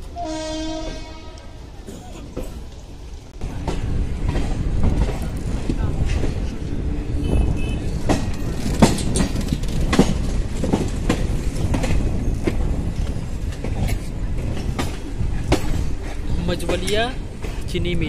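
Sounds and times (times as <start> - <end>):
train rumble: 0.0 - 18.0
wheel clacks over rail joints: 7.4 - 18.0.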